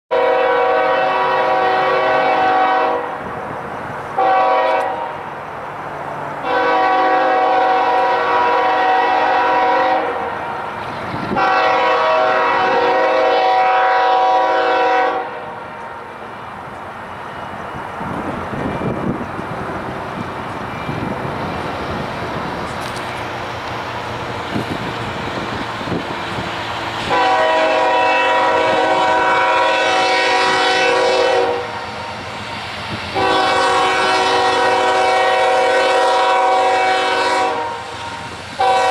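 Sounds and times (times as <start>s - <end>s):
locomotive air horn blasts: 0.1s - 3.4s, 4.2s - 5.4s, 6.4s - 10.6s, 11.3s - 16.1s, 25.8s - 32.3s, 32.9s - 38.9s
train rumbling: 0.1s - 38.9s
wheels clattering on rails: 15.7s - 27.2s.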